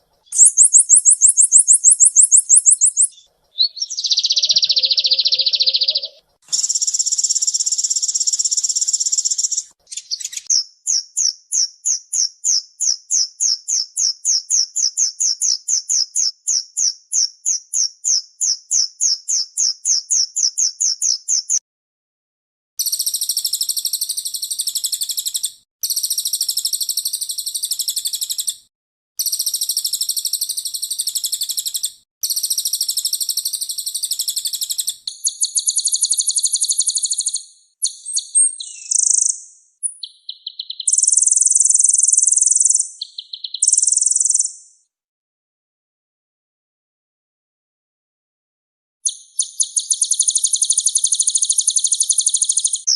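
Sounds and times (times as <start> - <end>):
sunbird chirping and trilling: 0.2 - 21.6, 29.2 - 44.8, 49.0 - 52.9.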